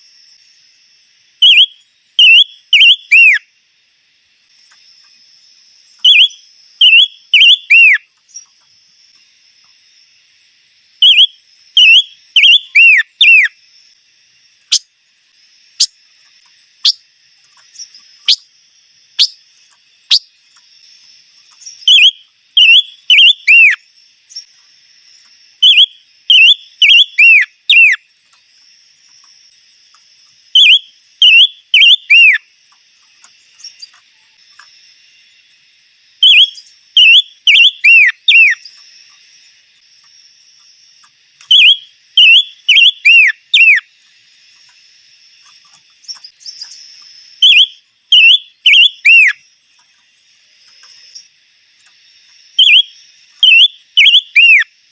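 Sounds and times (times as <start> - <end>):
faint insect hiss: 0.0 - 54.9
songbird whistling: 1.4 - 3.5, 6.0 - 8.5, 11.0 - 13.6, 17.7 - 18.5, 19.2 - 19.4, 20.1 - 20.3, 21.5 - 24.5, 25.6 - 28.0, 30.5 - 32.4, 36.2 - 38.8, 41.4 - 43.9, 47.4 - 49.4, 52.6 - 54.7.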